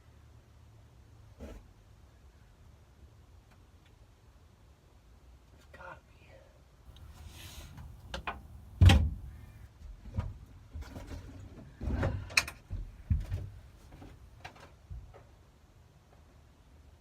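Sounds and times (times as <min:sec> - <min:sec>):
knocks and rattles behind dashboard: 0:08.1 - 0:09.4, 0:10.0 - 0:14.1.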